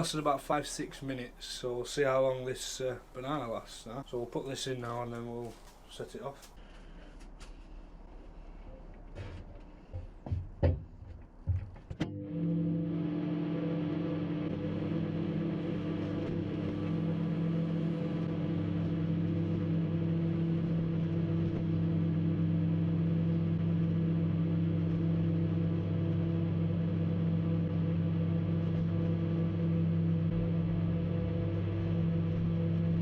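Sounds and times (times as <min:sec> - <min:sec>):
microwave oven humming: 0:11.3 - 0:33.0.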